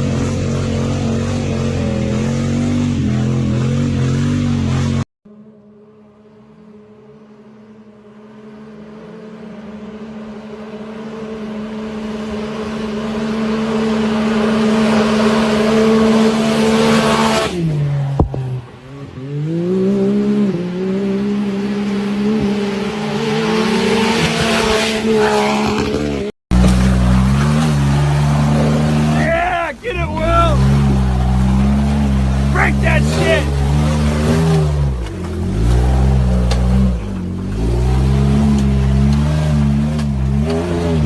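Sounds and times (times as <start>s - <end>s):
quad bike engine revving: 30.1s - 41.0s.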